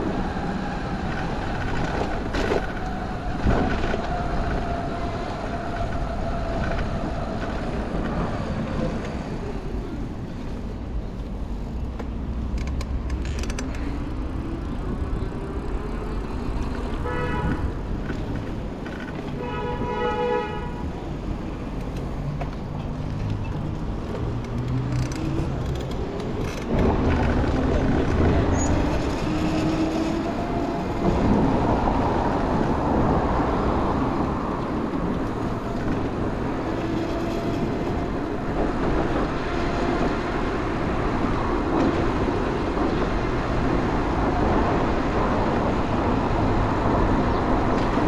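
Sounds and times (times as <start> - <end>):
street traffic: 0.0 - 48.0
vehicle horn honking: 17.0 - 17.7, 19.4 - 20.8.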